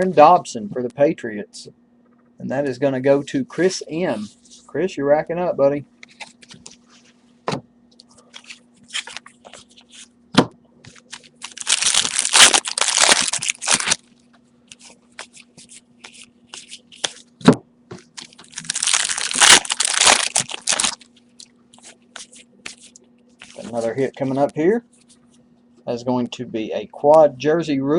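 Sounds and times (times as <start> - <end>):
wrappers tearing and crinkling: 8.4 - 9.8, 10.9 - 17.2, 18.2 - 24.4.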